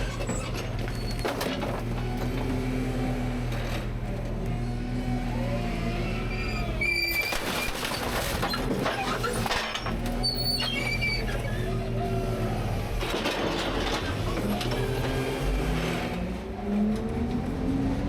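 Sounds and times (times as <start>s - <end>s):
garbage truck engine humming: 0.0s - 18.0s
hydraulics whining: 0.0s - 18.0s
short high squeals: 6.2s - 8.0s, 10.2s - 11.8s.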